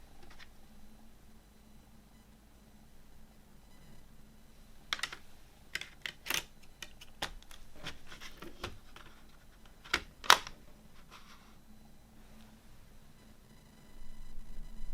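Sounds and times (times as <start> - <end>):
cd case clicking and tapping: 5.8 - 9.1, 9.7 - 10.6.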